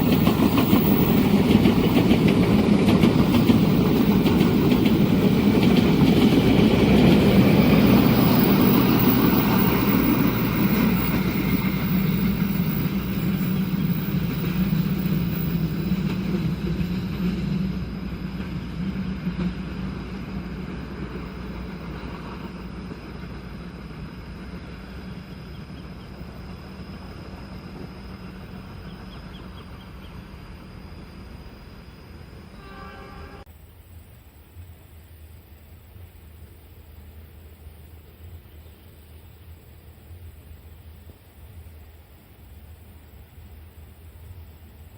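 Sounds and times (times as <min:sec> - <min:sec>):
train rumbling past: 0:00.0 - 0:33.6.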